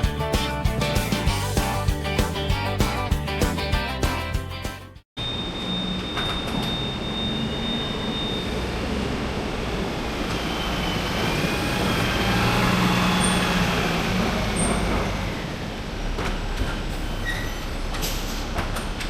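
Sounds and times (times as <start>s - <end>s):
heavy truck rumble: 8.4s - 19.0s.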